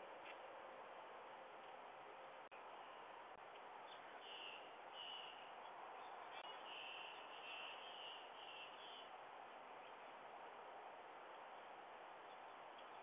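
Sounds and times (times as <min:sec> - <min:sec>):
bird chirping: 0:03.8 - 0:09.1.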